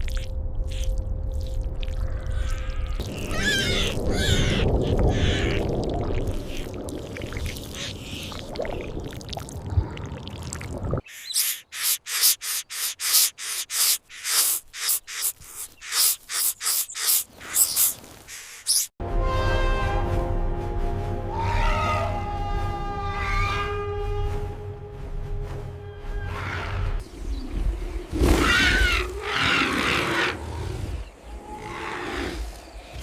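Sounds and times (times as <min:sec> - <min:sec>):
bird calls: 0:02.3 - 0:05.8, 0:11.0 - 0:18.9
sharp rasping bursts: 0:11.1 - 0:18.9.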